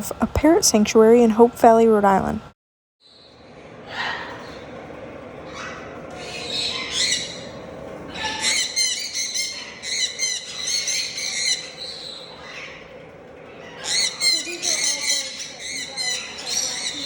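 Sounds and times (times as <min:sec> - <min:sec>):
parrots squawking and chattering: 0:03.1 - 0:04.8, 0:05.4 - 0:17.0.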